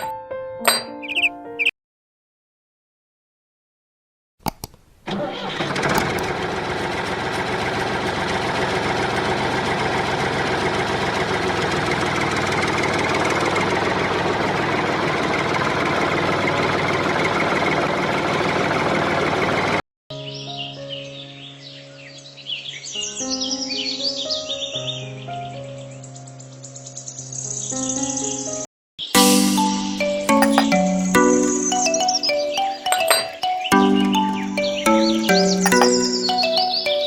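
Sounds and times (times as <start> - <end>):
clicks: 4.4 - 4.8
engine idling: 5.5 - 19.8.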